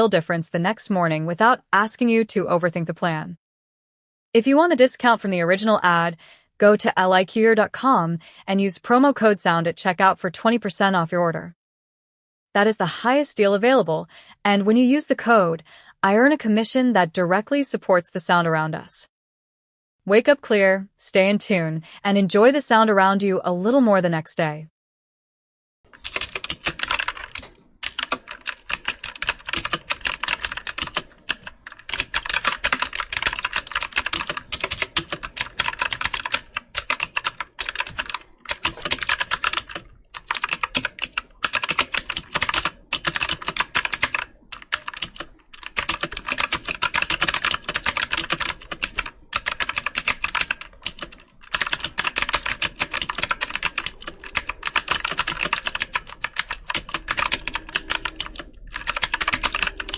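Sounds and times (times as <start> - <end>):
computer keyboard typing: 25.9 - 59.9.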